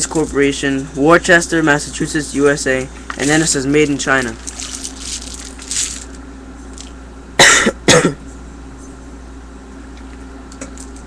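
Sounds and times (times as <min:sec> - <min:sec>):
man coughing: 0:07.4 - 0:08.2.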